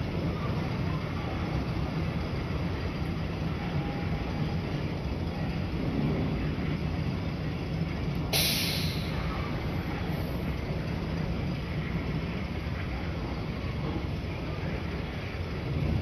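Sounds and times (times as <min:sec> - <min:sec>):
steam train wheels rumbling: 0:00.0 - 0:16.0
steam hiss: 0:08.2 - 0:10.9.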